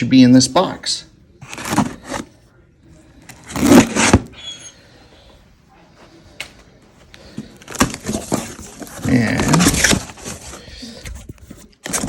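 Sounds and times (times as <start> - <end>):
cardboard and tape scraping: 1.4 - 2.3, 3.3 - 4.3, 7.6 - 12.0.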